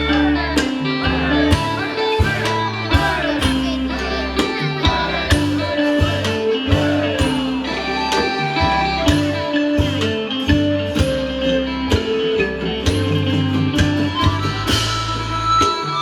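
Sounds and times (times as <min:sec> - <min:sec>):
bass line: 0:00.0 - 0:16.0
melody notes: 0:00.0 - 0:16.0
steady drum beat: 0:00.0 - 0:16.0.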